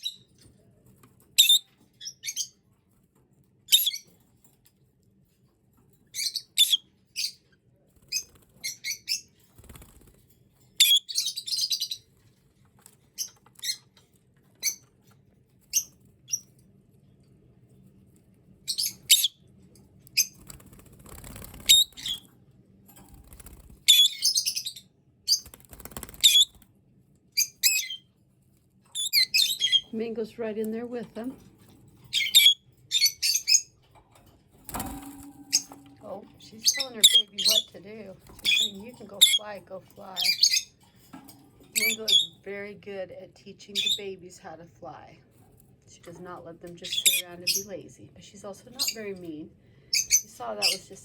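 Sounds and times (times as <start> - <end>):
lovebirds chirping: 6.2 - 7.4, 10.8 - 12.1, 18.7 - 19.4, 23.9 - 25.5, 27.4 - 28.1, 28.9 - 31.4, 32.1 - 33.8, 35.3 - 40.8, 41.7 - 45.0, 46.0 - 51.0.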